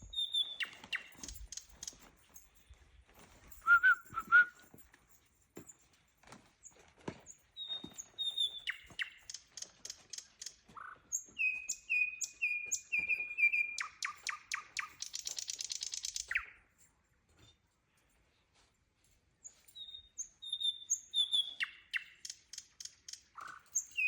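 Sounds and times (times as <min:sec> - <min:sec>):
nightingale singing: 0:00.0 - 0:02.0, 0:03.6 - 0:04.6, 0:07.6 - 0:16.7, 0:19.7 - 0:24.0.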